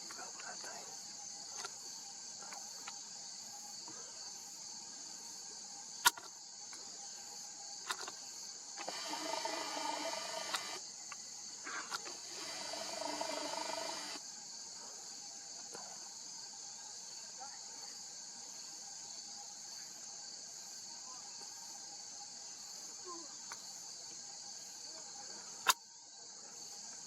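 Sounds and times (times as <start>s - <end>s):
crickets chirring: 0.0s - 27.0s
lens zoom motor whirring: 8.8s - 10.8s, 11.9s - 14.2s
sharp click: 8.8s - 11.2s.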